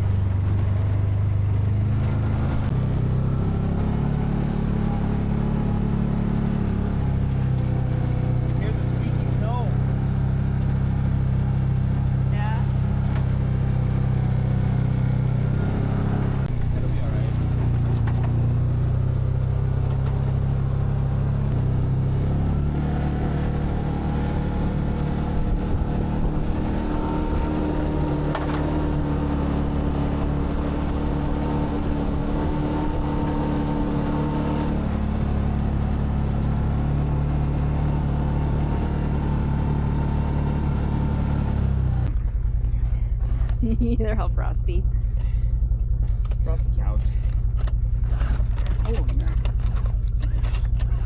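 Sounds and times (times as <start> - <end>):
vehicle engine running: 0.0 - 51.0.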